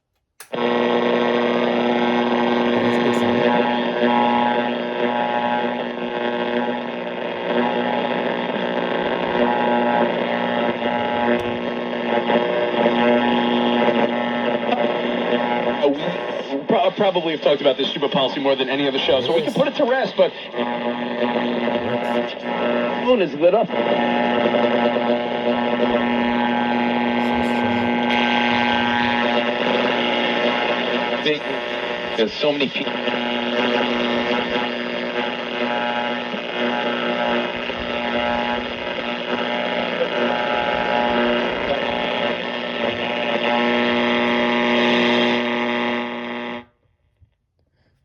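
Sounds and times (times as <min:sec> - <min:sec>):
radio hum with static: 0:00.4 - 0:46.8.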